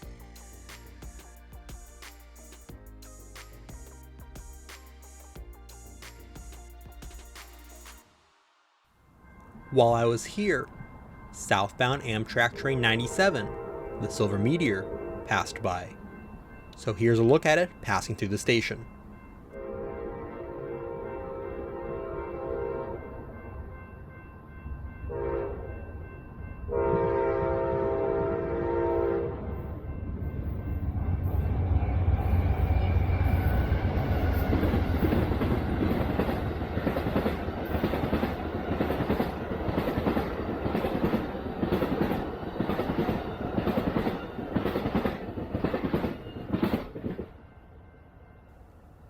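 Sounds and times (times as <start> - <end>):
crossing signal bell: 0.0 - 7.0, 9.0 - 45.2
train horn blasts: 13.0 - 15.5, 19.5 - 23.0, 25.1 - 25.7, 26.7 - 29.5
diesel locomotive rumble: 30.2 - 45.0.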